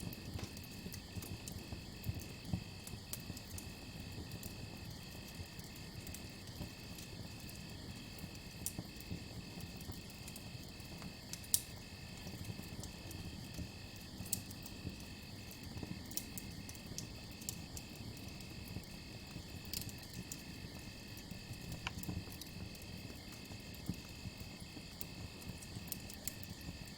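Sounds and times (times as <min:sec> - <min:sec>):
campfire rumbling and crackling: 0:00.0 - 0:26.9.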